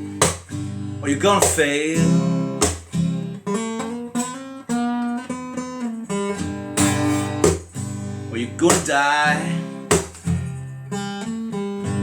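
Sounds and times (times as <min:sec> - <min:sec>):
acoustic guitar strumming and picking: 0:00.0 - 0:12.0
person singing: 0:08.4 - 0:09.8.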